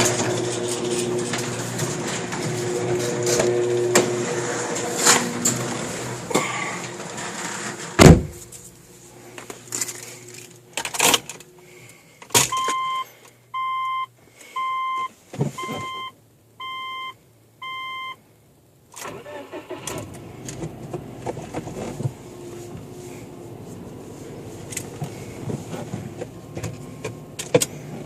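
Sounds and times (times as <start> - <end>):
heavy thump: 8.0 - 8.5
car warning chime beeping: 12.5 - 18.2.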